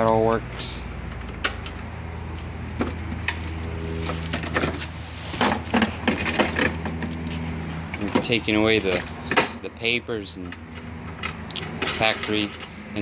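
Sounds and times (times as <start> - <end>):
steady low hum: 0.0 - 13.0
packing paper rustling: 3.0 - 6.0.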